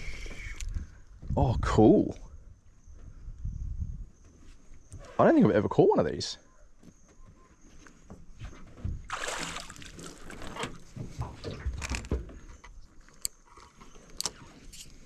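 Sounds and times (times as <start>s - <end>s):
rustling in boat: 6.7s - 15.0s
water sloshing in boat: 8.0s - 14.8s.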